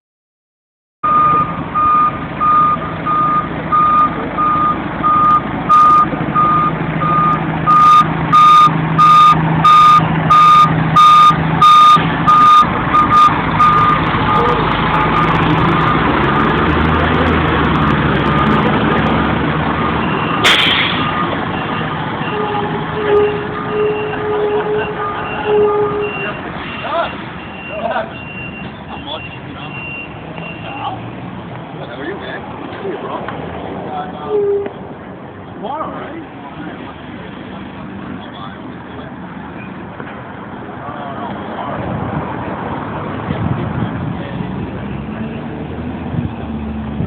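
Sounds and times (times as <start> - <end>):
back-up alarm beeping: 1.0 - 15.4
diesel engine running: 1.0 - 27.7.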